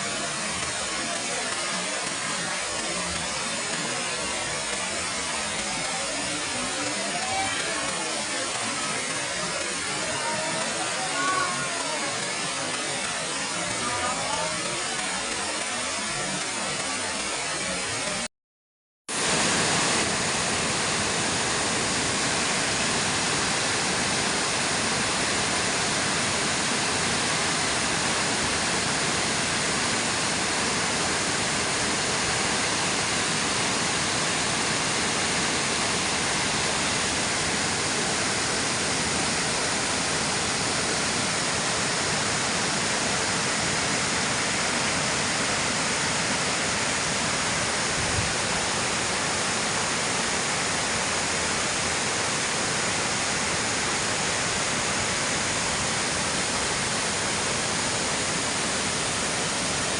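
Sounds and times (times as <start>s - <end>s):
waterfall pouring: 19.1s - 59.9s.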